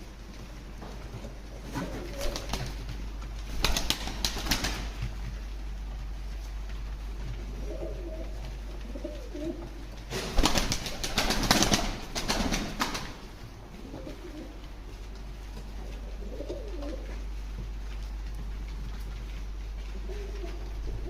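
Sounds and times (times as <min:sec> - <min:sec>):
steady low hum: 0:00.0 - 0:21.0
pigeons cooing: 0:01.4 - 0:02.9, 0:07.4 - 0:11.2, 0:13.6 - 0:14.9, 0:15.9 - 0:17.4, 0:19.9 - 0:21.0.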